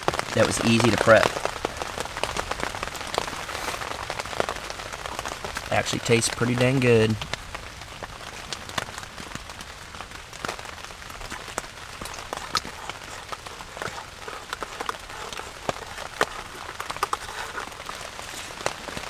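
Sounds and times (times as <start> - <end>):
raindrops ticking close by: 0.0 - 19.0
steady rain falling: 0.0 - 19.0.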